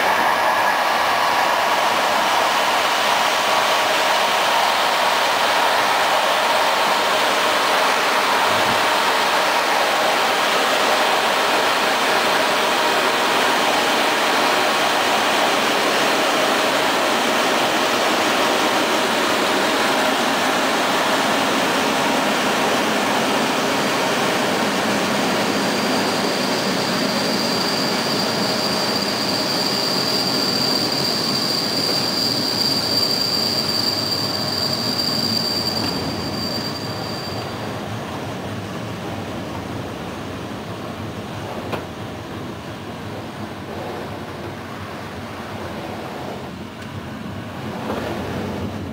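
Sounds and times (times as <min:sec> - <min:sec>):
train rolling on rails: 0:00.0 - 0:48.9
high wheel squeal: 0:25.6 - 0:37.8.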